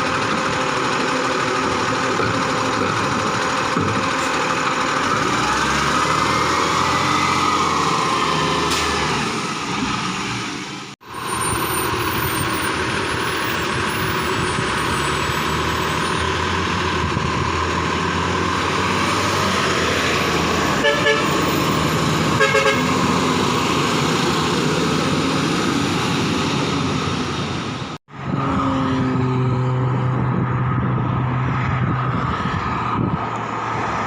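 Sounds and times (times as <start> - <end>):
truck engine running: 0.0 - 29.2
road and traffic noise: 0.0 - 34.0
horn toots: 20.7 - 21.5, 22.3 - 23.0.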